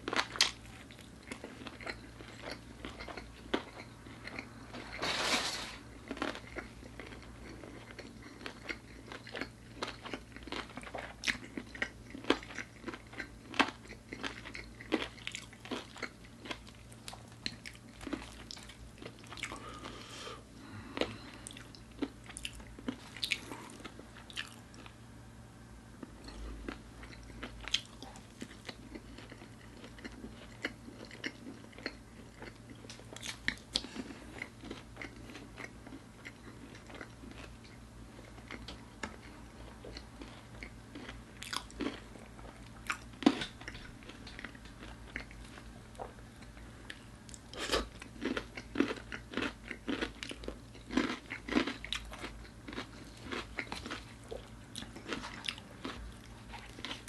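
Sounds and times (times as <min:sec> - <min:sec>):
crunchy bites and chewing: 0:00.0 - 0:25.0, 0:26.0 - 0:57.0.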